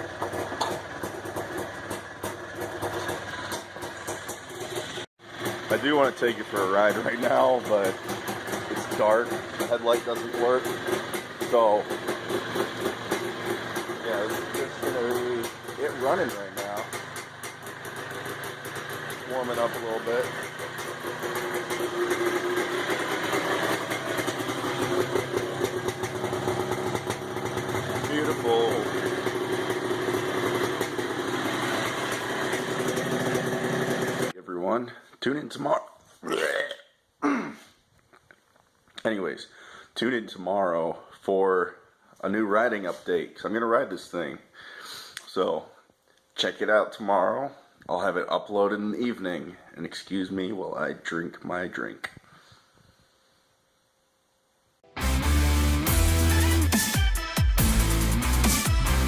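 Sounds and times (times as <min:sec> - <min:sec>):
two-stroke engine idling unevenly: 0:00.0 - 0:34.3.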